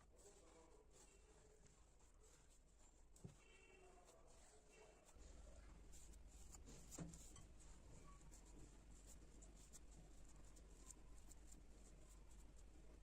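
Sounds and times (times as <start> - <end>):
faint clicks and scratches: 0.0 - 13.0.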